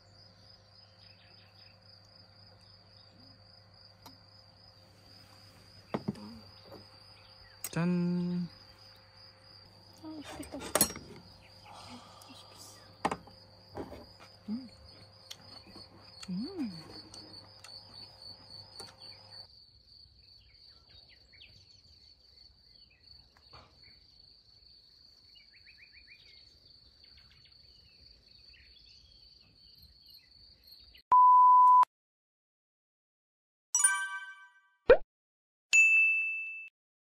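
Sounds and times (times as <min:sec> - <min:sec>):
insects chirring: 0:00.0 - 0:31.0
electronic beep: 0:31.1 - 0:31.9.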